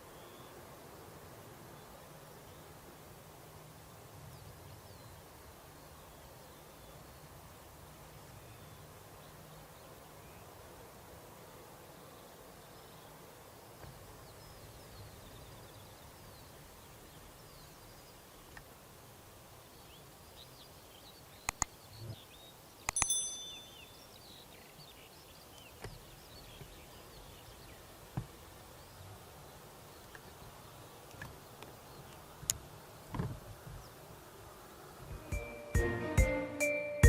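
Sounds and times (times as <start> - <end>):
faint bird chirps: 0.0 - 0.6, 19.6 - 32.3
sharp clicks: 21.4 - 21.7
short ringing metallic clink: 23.0 - 24.1.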